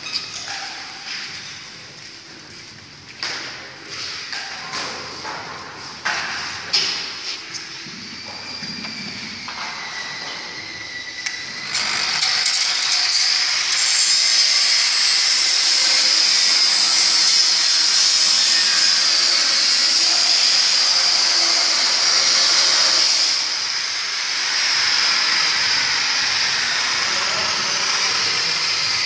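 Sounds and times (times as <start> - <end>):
angle grinder grinding steel: 10.6 - 29.0.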